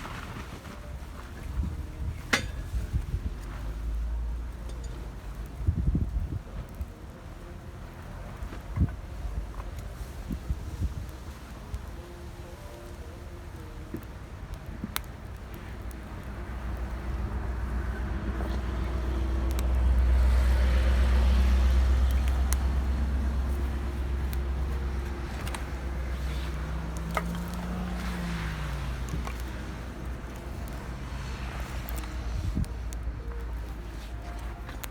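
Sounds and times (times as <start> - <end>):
distant racing car engines: 0.0 - 34.9.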